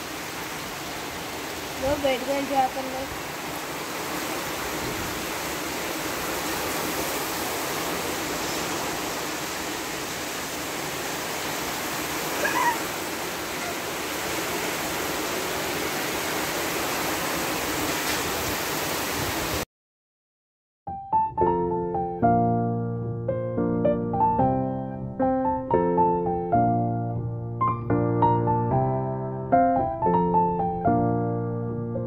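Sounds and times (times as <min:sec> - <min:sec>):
heavy rain pouring: 0:00.0 - 0:19.6
short high call: 0:12.4 - 0:12.9.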